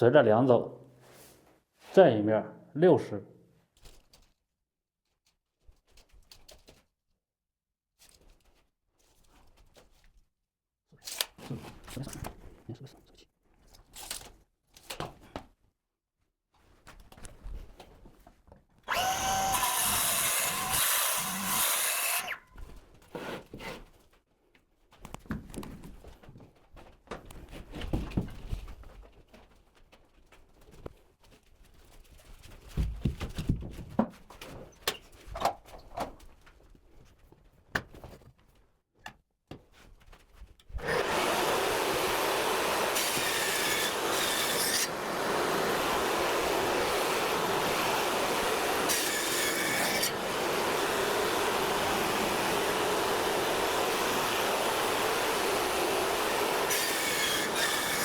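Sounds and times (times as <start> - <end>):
electric woodworking power tool: 18.9 - 22.4, 40.8 - 58.0.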